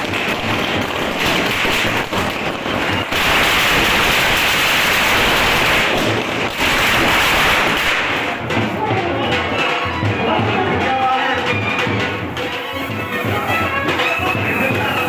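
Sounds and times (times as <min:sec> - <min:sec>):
dense crackling hiss: 0:00.0 - 0:08.4
music with pitched notes: 0:09.1 - 0:15.0.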